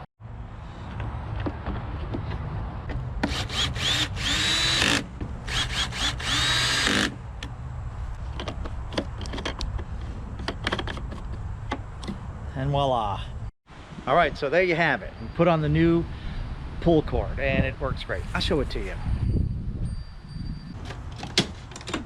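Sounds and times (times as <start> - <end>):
power drill driving bolts: 3.2 - 7.2
tool handling clicks and knocks: 8.2 - 12.3, 20.8 - 22.0.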